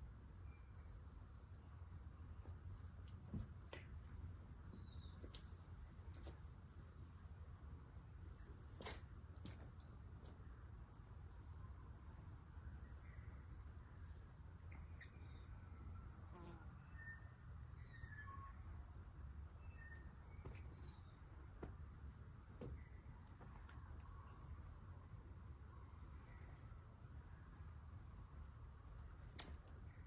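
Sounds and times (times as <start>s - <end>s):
faint bird chirps: 4.6s - 6.4s, 12.6s - 21.5s.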